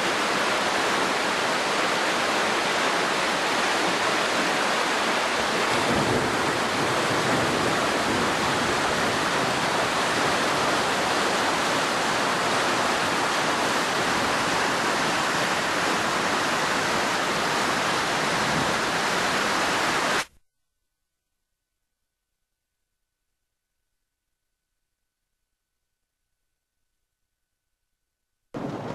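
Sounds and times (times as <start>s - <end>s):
floodwater rushing: 0.0s - 20.3s.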